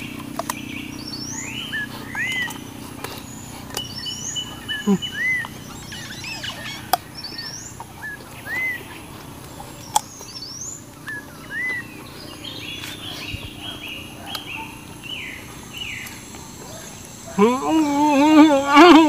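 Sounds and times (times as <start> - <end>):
birds whistling and chattering: 0.0 - 19.0
sharp clicks: 2.1 - 4.1, 7.7 - 11.8.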